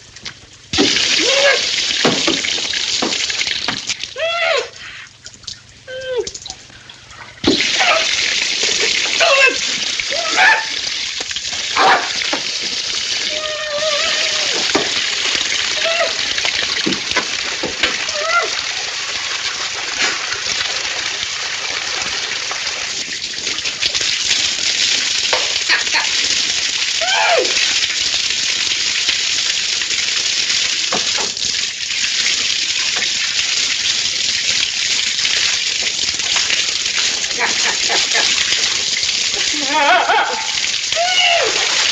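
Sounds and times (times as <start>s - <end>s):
water spraying from pipe: 0.0s - 41.9s
sharp splashes: 0.7s - 4.2s, 7.4s - 20.5s, 36.3s - 41.9s.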